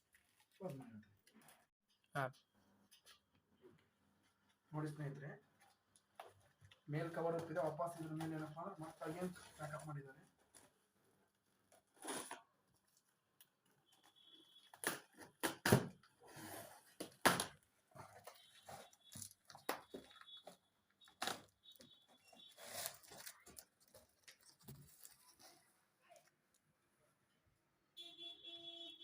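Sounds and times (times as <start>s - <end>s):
plastic tearing: 11.8s - 13.1s, 16.8s - 25.6s
rustling wrap: 22.1s - 25.8s.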